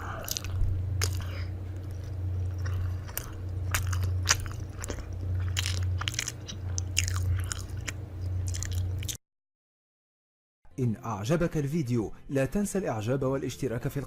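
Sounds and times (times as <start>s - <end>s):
low hum: 0.0s - 9.2s
person chewing crunchy food: 0.0s - 9.2s.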